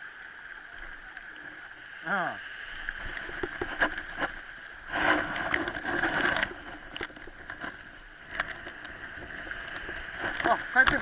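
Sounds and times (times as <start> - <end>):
sea water washing on beach: 0.6 - 11.0.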